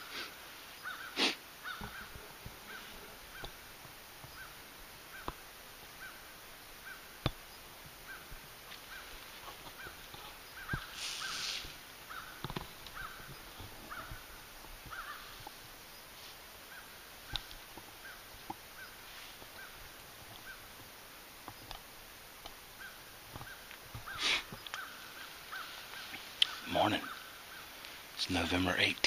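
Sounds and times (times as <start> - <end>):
bird calling: 0.0 - 29.0.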